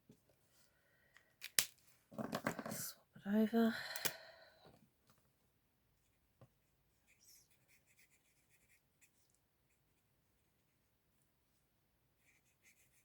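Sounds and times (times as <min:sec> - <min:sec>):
marker scratching on card: 0:07.1 - 0:09.2, 0:12.2 - 0:13.0.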